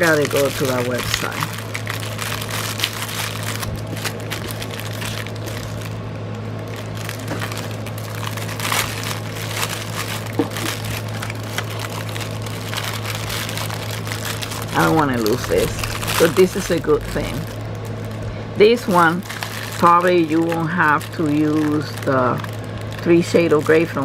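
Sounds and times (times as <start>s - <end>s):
packaging crinkling: 0.0s - 24.0s
steady low hum: 0.0s - 24.0s.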